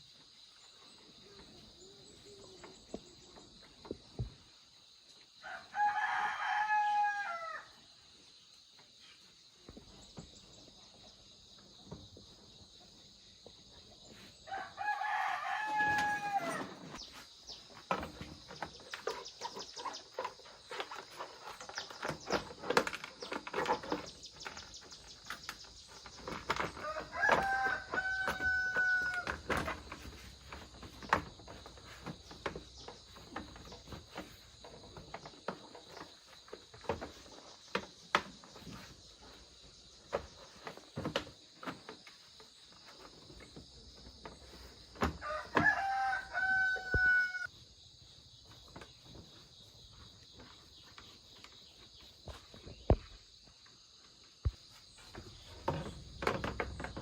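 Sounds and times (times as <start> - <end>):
rooster crowing: 5.4 - 7.7, 14.5 - 16.7, 26.8 - 29.4, 45.2 - 47.5.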